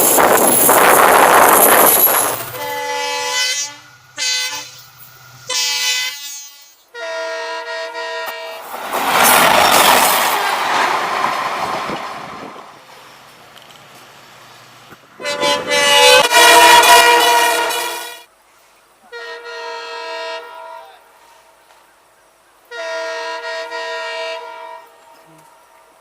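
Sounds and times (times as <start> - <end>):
train running rushing noise: 0.0 - 7.0, 7.6 - 18.3
locomotive horn blasts: 2.5 - 8.6, 15.2 - 18.3, 19.1 - 21.4, 22.7 - 25.7.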